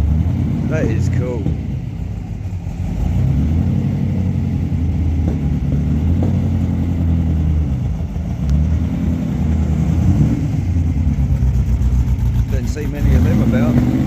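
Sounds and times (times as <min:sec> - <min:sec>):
car engine low rumble: 0:00.0 - 0:14.0
exhaust pops: 0:05.1 - 0:06.7.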